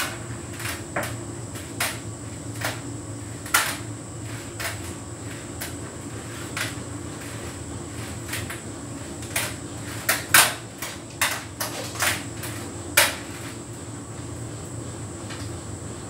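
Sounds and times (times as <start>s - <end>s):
tumble dryer humming: 0.0s - 16.0s.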